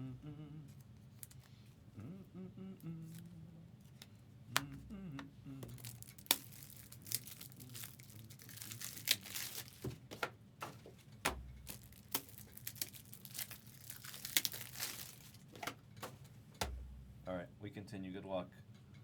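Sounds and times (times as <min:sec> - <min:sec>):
card pack wrappers tearing: 0:00.7 - 0:01.6, 0:03.0 - 0:04.9, 0:05.6 - 0:16.9.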